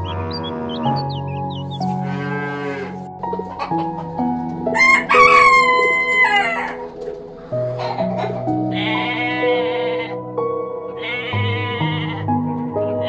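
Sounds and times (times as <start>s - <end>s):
cow mooing: 0.0s - 3.1s, 8.7s - 10.2s, 11.0s - 12.3s
background music: 0.0s - 13.0s
rooster crowing: 4.7s - 7.0s.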